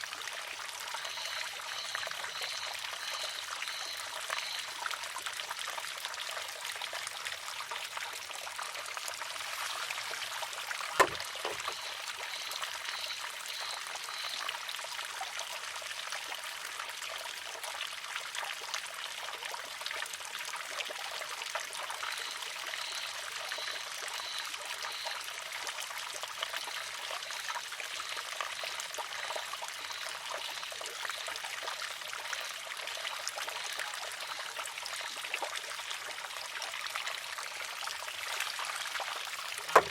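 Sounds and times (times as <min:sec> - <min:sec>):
water trickling and splashing: 0:00.0 - 0:39.9
sharp wooden clack: 0:11.0 - 0:11.9, 0:39.6 - 0:39.9.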